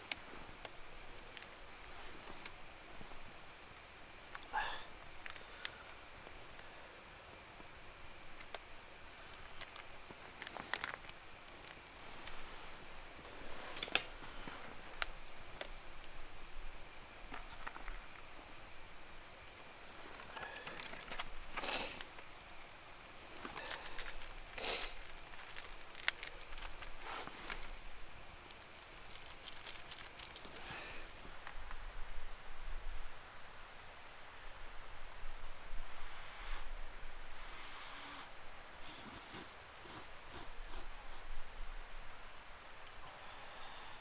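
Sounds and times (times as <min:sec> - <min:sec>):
high hiss: 0:00.0 - 0:31.4, 0:35.5 - 0:44.0
wood fire crackling: 0:00.0 - 0:31.4.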